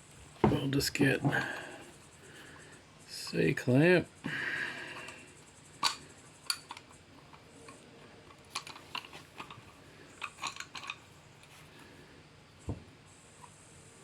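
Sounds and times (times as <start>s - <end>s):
metal tools clicking and knocking: 5.8s - 11.1s.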